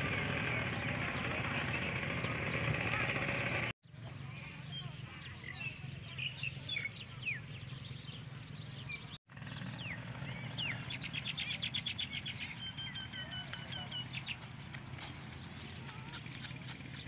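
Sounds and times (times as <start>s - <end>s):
small birds chirping: 0.5s - 17.0s.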